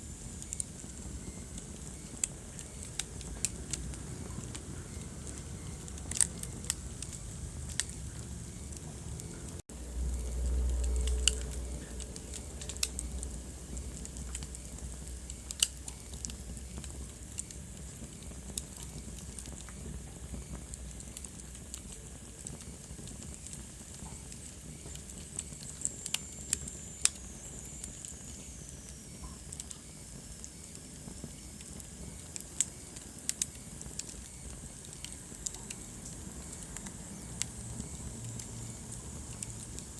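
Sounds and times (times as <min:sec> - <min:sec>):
wood fire crackling: 0:00.0 - 0:39.9
low rumble: 0:03.7 - 0:15.2.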